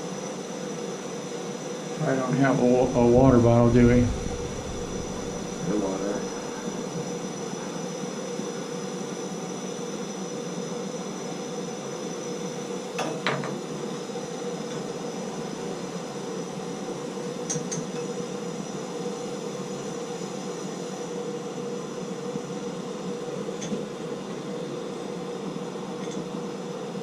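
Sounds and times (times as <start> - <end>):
gas torch roaring: 2.3 - 7.1.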